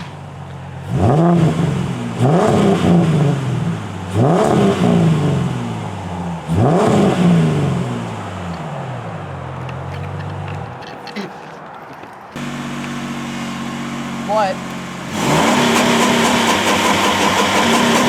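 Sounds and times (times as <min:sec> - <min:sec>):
car engine revving: 0:00.0 - 0:10.6, 0:12.4 - 0:18.0
car engine idling: 0:12.4 - 0:18.0.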